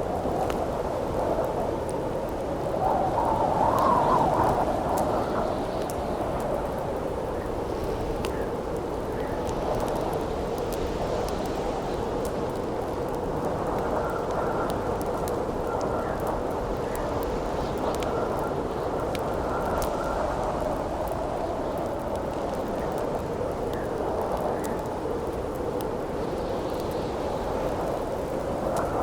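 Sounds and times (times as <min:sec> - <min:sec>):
wind howling: 0:00.0 - 0:08.2
campfire crackling and popping: 0:00.0 - 0:29.0.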